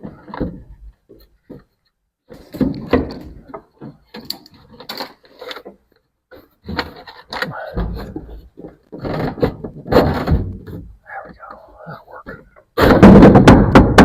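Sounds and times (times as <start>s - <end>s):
wooden boards knocking: 12.8s - 14.0s.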